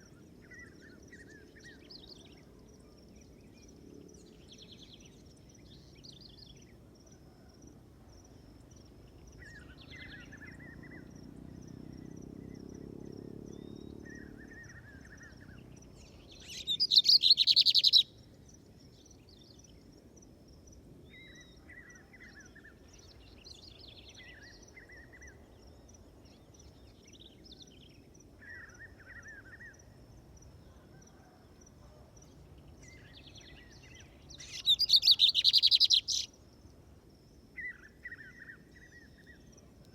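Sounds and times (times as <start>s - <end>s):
songbird twittering: 13.5s - 18.2s, 32.6s - 36.4s.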